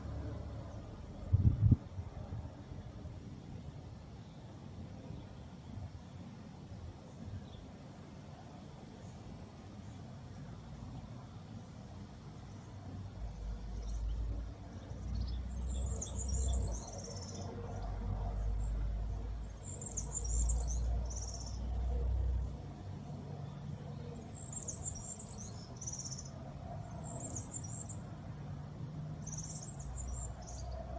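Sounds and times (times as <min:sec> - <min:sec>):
small bird chirping and trilling: 0:15.0 - 0:17.4, 0:19.4 - 0:21.7, 0:24.2 - 0:26.3, 0:26.9 - 0:28.0, 0:29.2 - 0:30.8.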